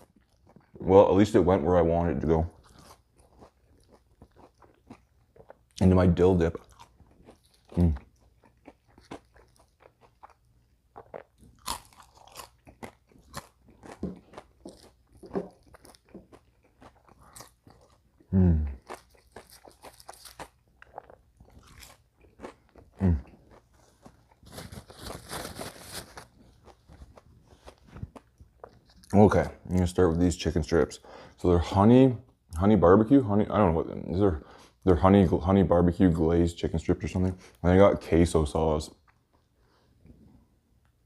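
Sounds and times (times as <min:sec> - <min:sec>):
crunching crispy food: 0:06.4 - 0:29.3
low vocal sounds: 0:18.3 - 0:18.8.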